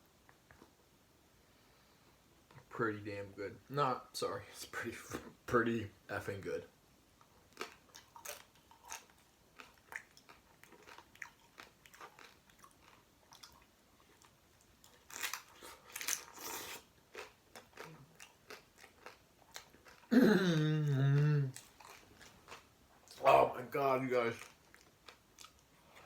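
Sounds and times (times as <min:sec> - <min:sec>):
chewing and crunching taco: 0:07.2 - 0:23.2, 0:24.2 - 0:26.0
person humming mmm: 0:20.1 - 0:21.6.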